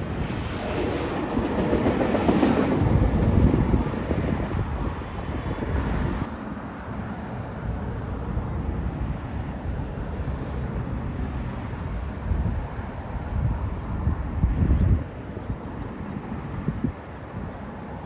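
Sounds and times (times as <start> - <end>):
train rumble: 0.0 - 6.3
wind buffeting microphone: 0.0 - 6.3, 12.2 - 15.6.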